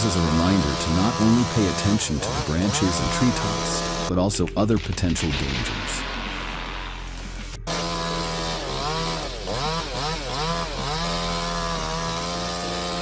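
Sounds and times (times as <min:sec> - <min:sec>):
chainsaw running at high revs: 0:00.0 - 0:04.1, 0:07.7 - 0:13.0.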